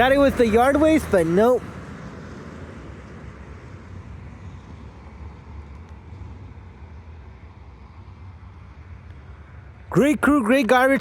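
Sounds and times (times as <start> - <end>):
truck engine running: 0.0 - 2.2
road traffic noise: 0.0 - 11.0.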